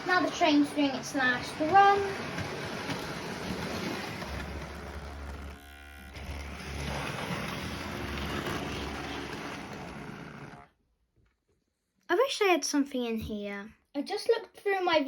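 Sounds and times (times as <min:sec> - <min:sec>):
model train whirring rumble: 0:00.0 - 0:10.7.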